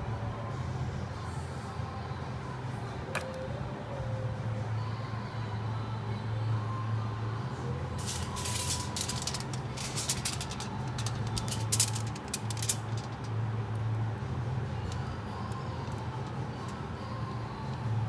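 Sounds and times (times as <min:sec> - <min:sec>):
steady low hum: 0:07.8 - 0:18.0
tools clicking and scraping: 0:08.0 - 0:13.3.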